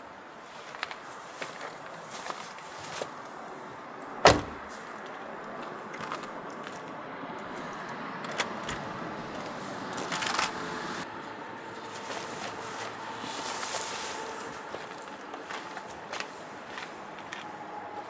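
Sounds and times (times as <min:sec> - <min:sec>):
loud thump: 0:04.2 - 0:04.7.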